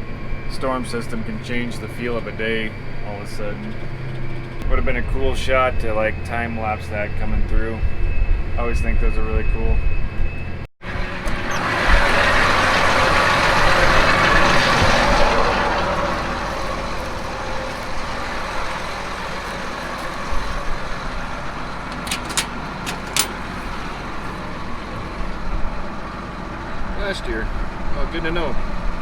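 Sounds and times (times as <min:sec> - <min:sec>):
tractor engine running: 0:10.1 - 0:29.0.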